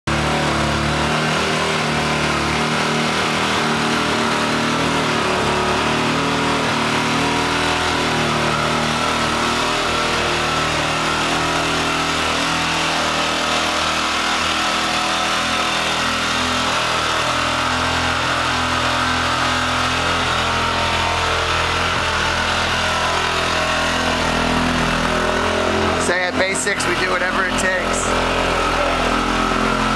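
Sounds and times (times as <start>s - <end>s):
motorcycle engine idling: 27.6s - 29.9s.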